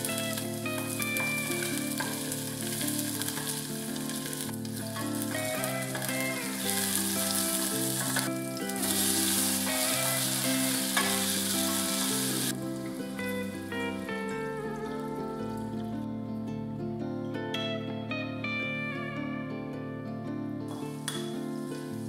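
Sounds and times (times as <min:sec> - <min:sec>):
onions sizzling in hot oil: 0:00.0 - 0:14.2, 0:20.7 - 0:22.0
background music: 0:00.0 - 0:22.0.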